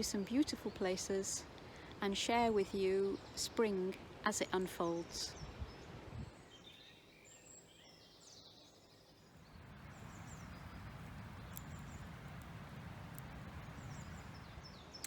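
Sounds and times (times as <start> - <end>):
birds chirping and trilling: 5.3 - 15.0.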